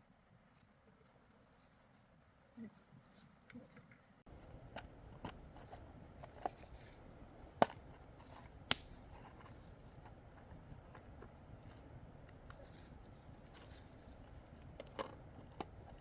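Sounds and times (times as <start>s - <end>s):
low steady hiss: 0.0s - 16.0s
sharp snaps and clicks: 7.2s - 16.0s.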